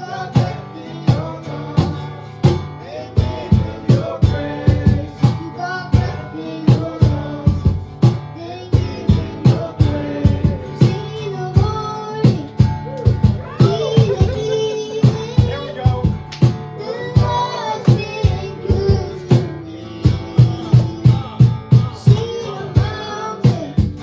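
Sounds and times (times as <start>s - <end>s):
person singing: 0.0s - 2.0s, 8.4s - 24.0s
guitar: 0.0s - 24.0s
drum beat: 0.3s - 24.0s.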